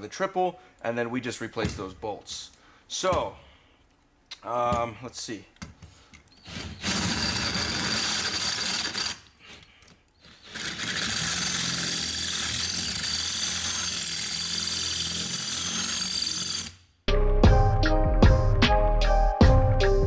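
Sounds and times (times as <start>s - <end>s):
power drill drilling into bolt: 6.3s - 9.6s, 10.2s - 16.8s
music: 17.1s - 20.0s.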